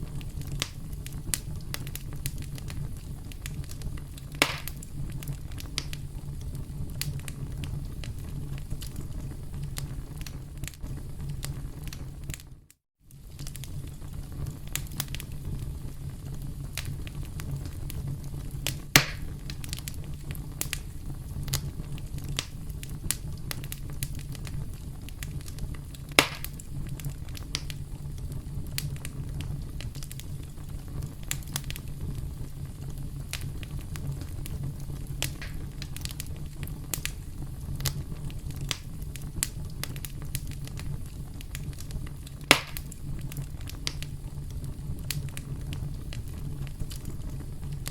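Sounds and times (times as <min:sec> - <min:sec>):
campfire crackling: 0:00.0 - 0:47.9
loud wood snaps: 0:04.4 - 0:04.8, 0:19.0 - 0:19.3, 0:26.2 - 0:26.6, 0:42.5 - 0:42.9.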